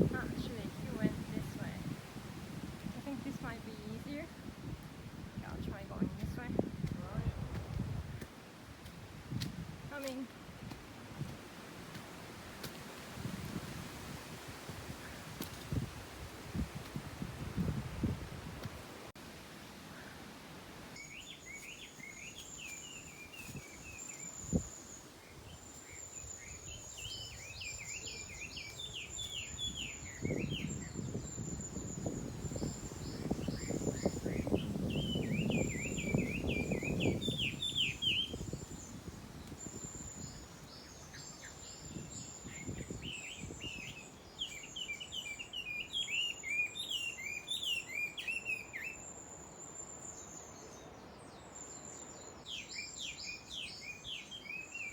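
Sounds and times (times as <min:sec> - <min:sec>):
songbird chirping: 0:20.9 - 0:54.9
rustling and scuffing: 0:21.5 - 0:24.1.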